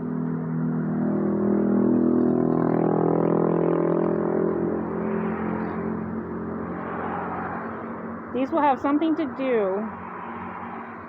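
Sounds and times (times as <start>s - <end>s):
motor vehicle passing: 0.0s - 11.0s.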